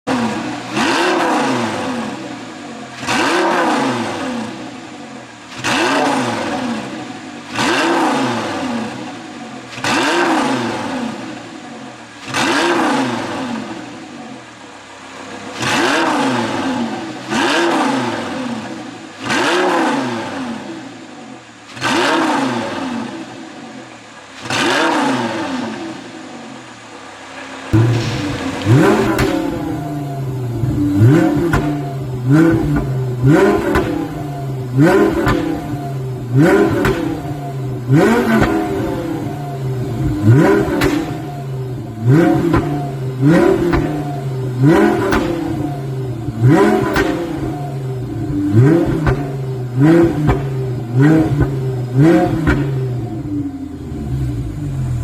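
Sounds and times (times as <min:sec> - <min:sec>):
car engine revving: 0:00.0 - 0:55.0
exhaust popping and crackling: 0:26.6 - 0:55.0.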